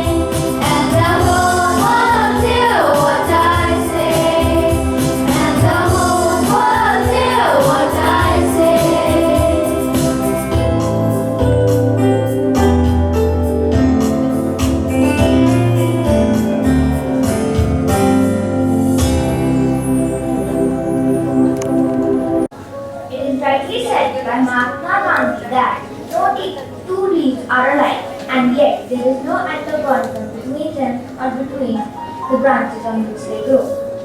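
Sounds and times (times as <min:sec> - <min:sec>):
voices singing: 0:00.0 - 0:10.9
instrumental accompaniment: 0:00.0 - 0:26.9.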